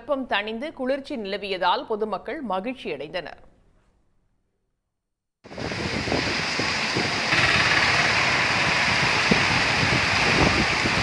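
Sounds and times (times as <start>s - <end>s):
heavy rain pouring: 5.5s - 11.0s.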